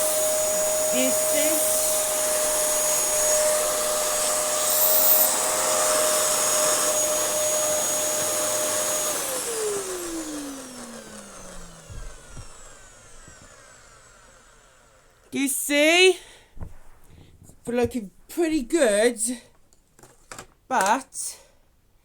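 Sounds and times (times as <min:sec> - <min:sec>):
vacuum cleaner running with whine: 0:00.0 - 0:15.3.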